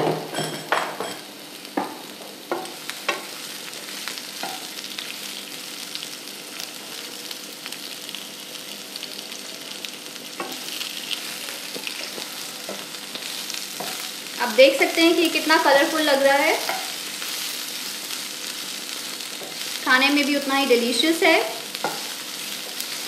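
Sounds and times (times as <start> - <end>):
bell peppers sizzling in oil: 0.0 - 23.0
spatula knocking in pan: 21.8 - 22.1.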